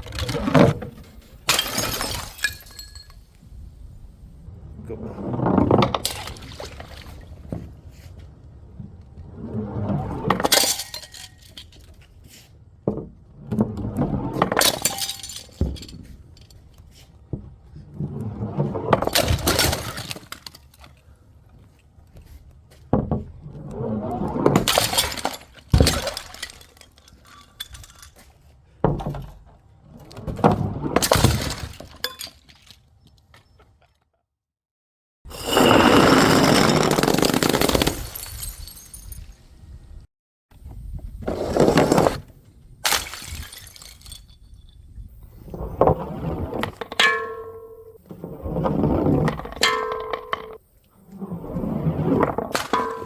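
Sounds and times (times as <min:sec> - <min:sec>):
glass bottles smashing: 0:01.4 - 0:03.3, 0:10.4 - 0:11.8, 0:14.6 - 0:16.5, 0:19.1 - 0:20.8, 0:24.6 - 0:28.2, 0:31.0 - 0:32.7, 0:35.3 - 0:39.4, 0:42.8 - 0:44.8, 0:52.4 - 0:53.0
glass shards clinking: 0:01.5 - 0:03.2, 0:14.6 - 0:16.5, 0:42.9 - 0:44.7, 0:52.6 - 0:53.0.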